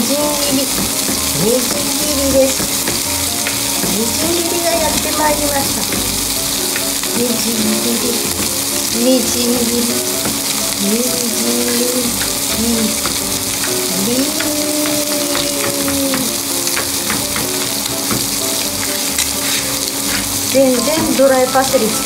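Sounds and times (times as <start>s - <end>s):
fish sizzling in a pan: 0.0s - 22.0s
quiet melody: 0.0s - 22.0s
knife chopping on plastic board: 0.7s - 2.0s, 14.4s - 18.3s.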